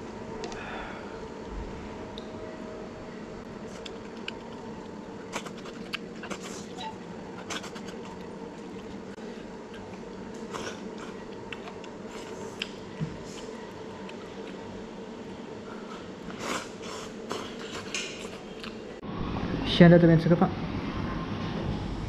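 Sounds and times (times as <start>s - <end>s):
steady hum: 0.0s - 22.0s
person chewing noodles: 3.6s - 18.8s.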